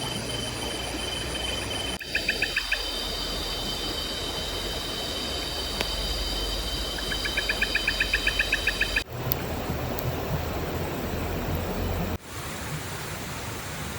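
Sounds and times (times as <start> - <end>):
rapid chirping call: 0.0 - 9.1
insects droning: 0.0 - 12.2
steady rushing noise: 0.0 - 13.9.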